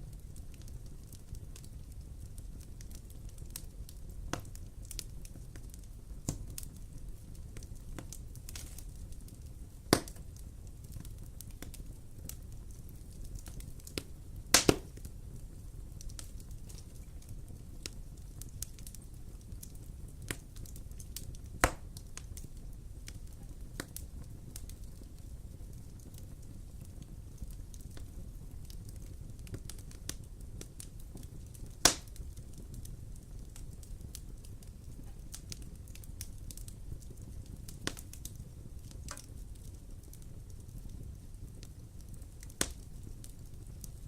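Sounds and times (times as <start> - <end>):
low rumble of fire: 0.0 - 44.0
wood fire crackling: 0.0 - 44.0
loud sharp pops: 9.9 - 10.2, 14.5 - 15.0, 31.8 - 32.1.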